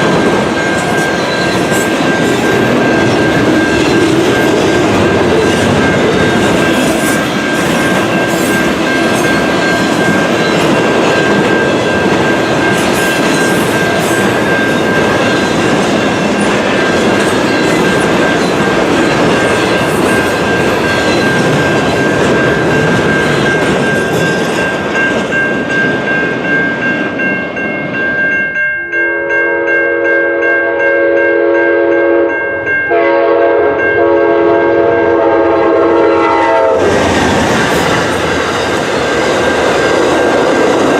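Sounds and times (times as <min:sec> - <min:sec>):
train wheel-and-rail noise: 0:00.0 - 0:28.6, 0:30.7 - 0:40.9
train air horn blast: 0:30.7 - 0:32.3, 0:32.9 - 0:37.0.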